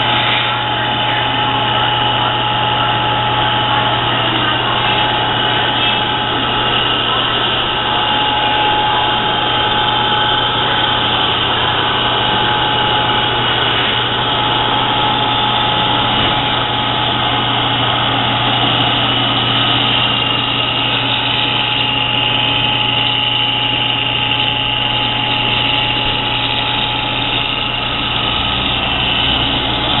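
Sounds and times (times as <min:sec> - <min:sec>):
electric motor hum and whine: 0:00.0 - 0:30.0.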